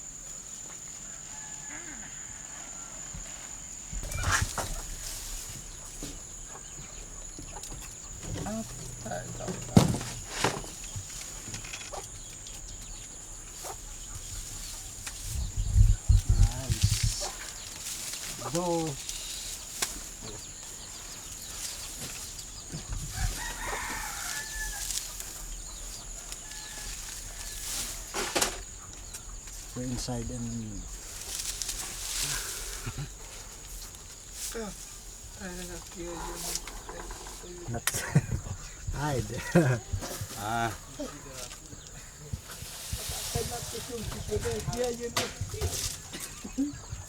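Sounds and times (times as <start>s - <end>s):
chickens clucking: 3.4s - 47.0s
high-pitched insect buzz: 7.9s - 12.3s.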